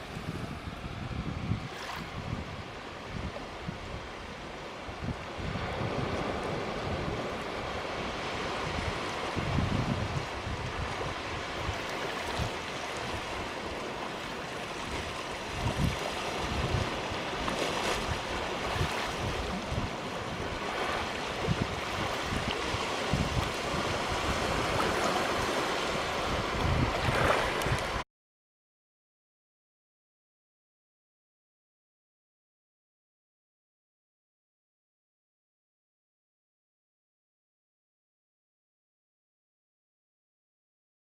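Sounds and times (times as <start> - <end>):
waves washing onto beach: 0.0 - 28.0
wind buffeting microphone: 0.0 - 28.0.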